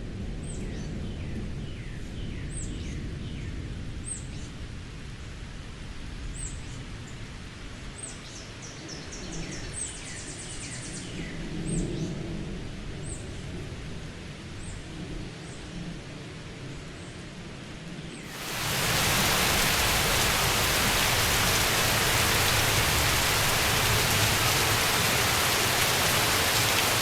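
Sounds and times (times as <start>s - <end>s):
birds chirping: 18.3s - 27.0s
distant thunder rumble: 18.3s - 27.0s.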